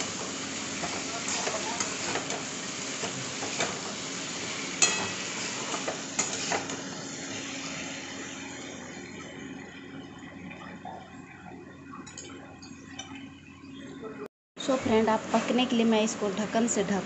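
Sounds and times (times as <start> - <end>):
food sizzling in a wok: 0.0 - 9.5.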